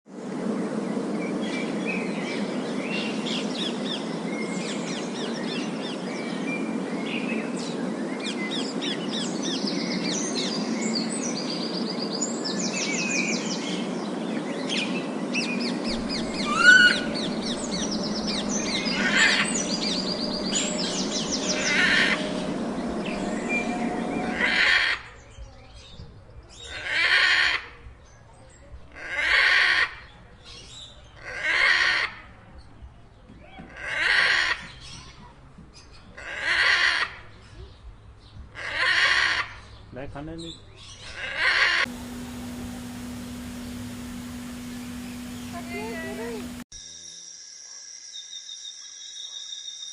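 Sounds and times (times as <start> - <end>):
crowd of birds din: 13.6 - 26.0, 40.8 - 46.6
parrots chirping and trilling: 15.4 - 25.0, 40.8 - 46.6
parrot harsh squawk: 16.1 - 19.5, 24.3 - 25.0, 29.0 - 29.9, 33.8 - 34.6, 36.2 - 37.1, 38.6 - 39.5, 41.2 - 41.8.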